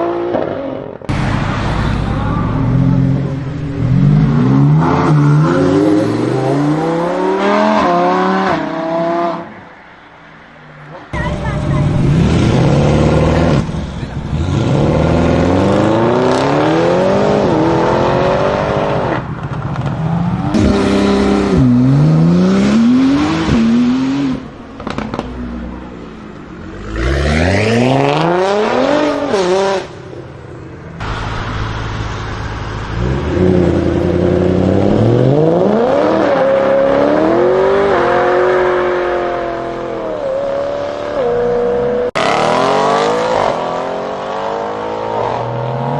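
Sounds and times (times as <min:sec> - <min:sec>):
car engines accelerating hard: 0:11.1 - 0:30.0, 0:31.0 - 0:45.9.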